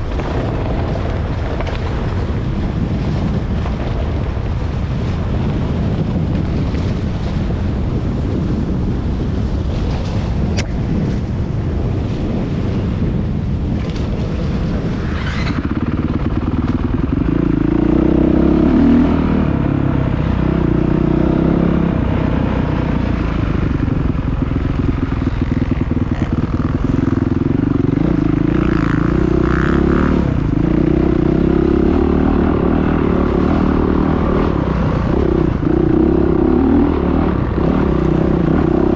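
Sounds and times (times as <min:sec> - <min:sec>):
low steady rumbling: 0:00.0 - 0:38.9
dirt bike engine revving: 0:14.8 - 0:38.9.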